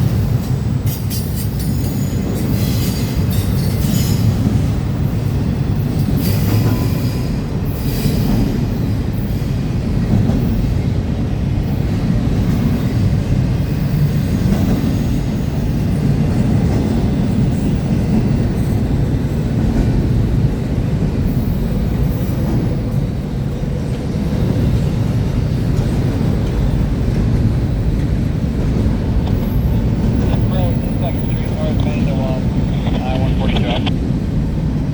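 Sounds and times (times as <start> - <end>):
train wheels rumbling on rail: 0.0 - 34.9.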